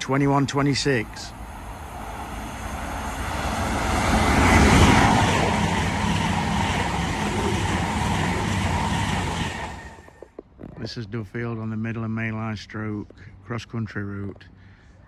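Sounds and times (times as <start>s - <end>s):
passenger train passing at speed: 0.0s - 10.2s.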